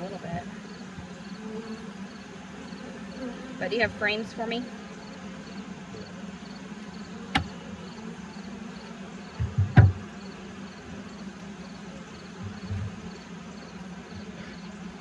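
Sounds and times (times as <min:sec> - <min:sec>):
honey bees buzzing: 0:00.0 - 0:15.0
knock with dull thumps: 0:07.3 - 0:07.5, 0:09.4 - 0:10.1.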